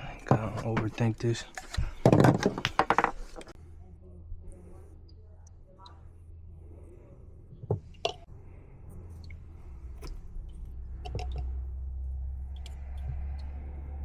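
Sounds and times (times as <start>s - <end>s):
clicks and knocks on plastic fittings: 11.0s - 11.5s.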